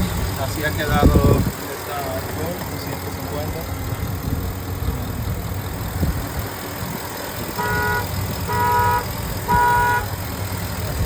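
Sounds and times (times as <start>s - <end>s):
truck engine idling: 0.0s - 11.0s
vehicle horn honks: 7.4s - 10.3s.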